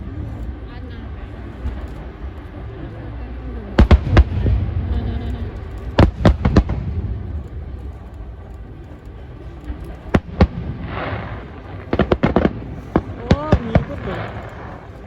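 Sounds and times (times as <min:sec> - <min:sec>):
low continuous rumble: 0:00.0 - 0:15.0
fireworks bangs: 0:03.8 - 0:08.0, 0:09.9 - 0:15.0.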